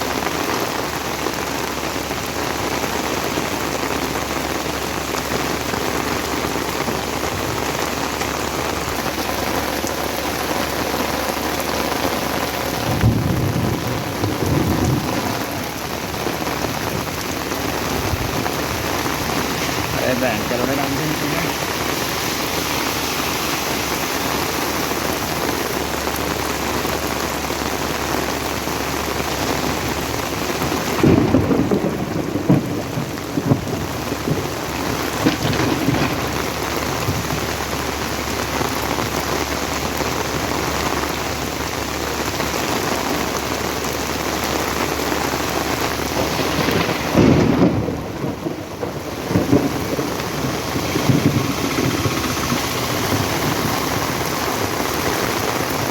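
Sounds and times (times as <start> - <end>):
heavy rain pouring: 0.0 - 55.9
low rumbles: 4.0 - 27.1.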